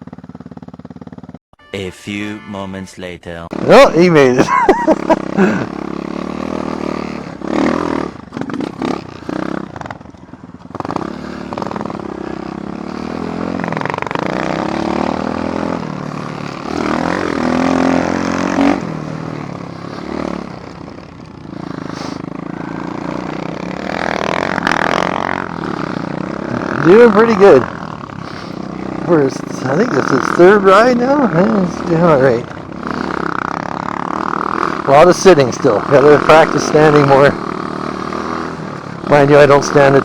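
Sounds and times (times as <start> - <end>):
dirt bike engine revving: 0.0 - 1.4, 3.5 - 40.0.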